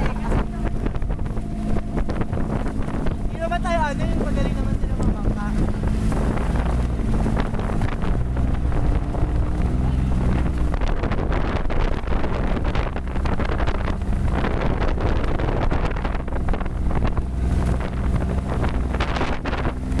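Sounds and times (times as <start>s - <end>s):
boat engine running: 0.0s - 20.0s
water rushing: 0.0s - 20.0s
wind buffeting microphone: 0.0s - 20.0s.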